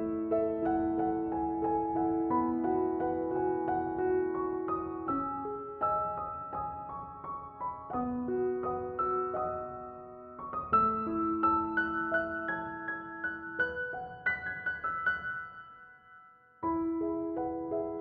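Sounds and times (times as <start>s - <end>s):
gentle piano melody: 0.0s - 18.0s.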